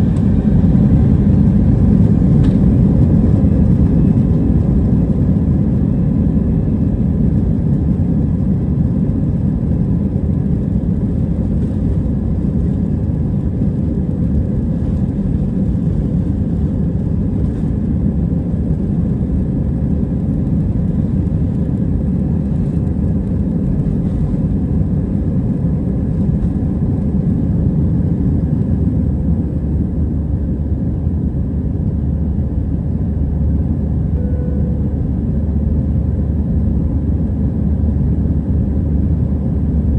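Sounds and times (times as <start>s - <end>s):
airplane cabin engine rumble: 0.0s - 39.9s
faint steady tones: 34.1s - 35.6s.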